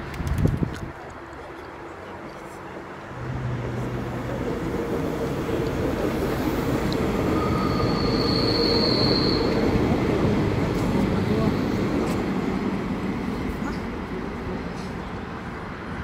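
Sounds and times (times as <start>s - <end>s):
diesel railcar engine and wheels: 0.0s - 16.0s
high-pitched wheel squeal: 7.1s - 10.0s.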